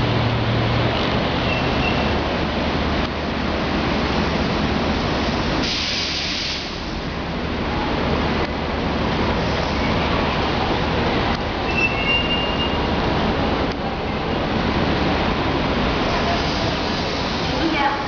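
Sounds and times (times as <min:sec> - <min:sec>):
hiss of air: 0:05.5 - 0:07.0, 0:16.1 - 0:17.7
electric train braking to a stop: 0:11.6 - 0:12.9.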